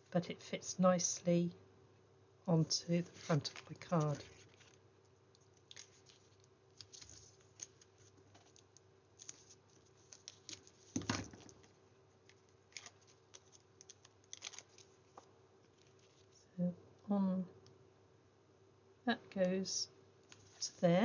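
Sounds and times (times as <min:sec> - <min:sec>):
paper rustling: 0:03.1 - 0:04.8, 0:05.4 - 0:16.4.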